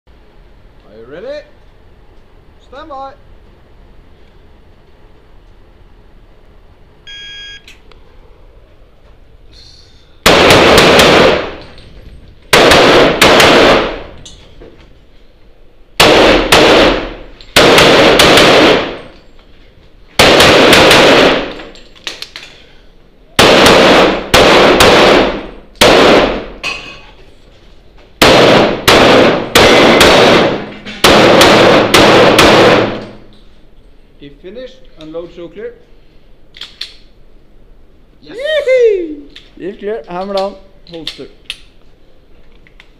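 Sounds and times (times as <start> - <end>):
pistol shots ringing: 10.2 - 11.8, 12.5 - 14.2, 16.0 - 19.2, 20.2 - 21.7, 23.4 - 26.6, 28.2 - 33.3.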